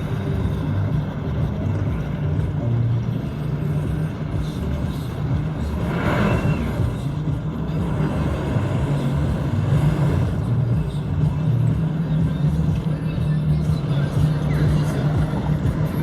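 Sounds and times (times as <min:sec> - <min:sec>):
low engine rumble: 0:00.0 - 0:16.0.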